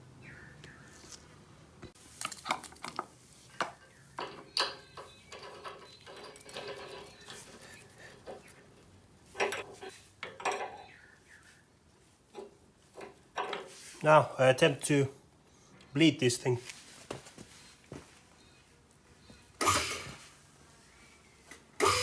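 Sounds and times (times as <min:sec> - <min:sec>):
metal clinking and knocking: 0:02.2 - 0:07.6, 0:09.4 - 0:10.8.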